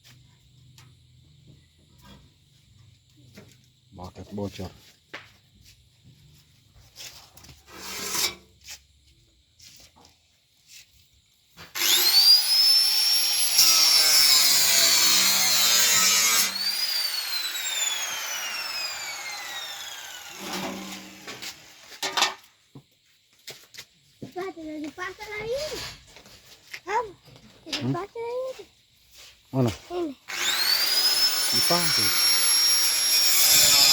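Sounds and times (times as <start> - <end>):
angle grinder grinding: 11.7 - 22.0, 30.3 - 33.9.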